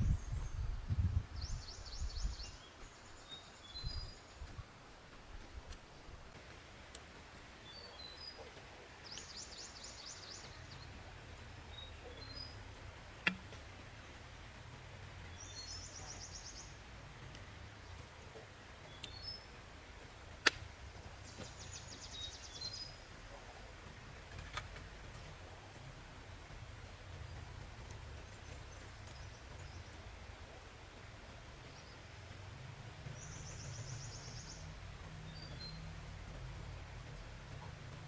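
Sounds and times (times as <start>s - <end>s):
low background noise: 0.0s - 38.0s
songbird trilling and chirping: 1.4s - 4.4s, 9.0s - 13.6s, 15.3s - 16.8s, 18.9s - 19.5s, 21.2s - 23.1s, 33.1s - 35.9s
sharp clicks: 13.2s - 13.6s.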